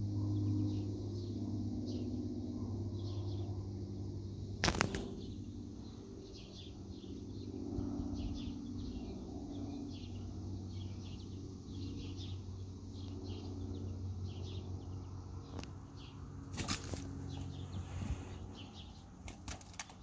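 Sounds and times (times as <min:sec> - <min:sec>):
small birds chirping: 0:00.0 - 0:02.2, 0:02.8 - 0:20.0
steady low hum: 0:00.0 - 0:20.0.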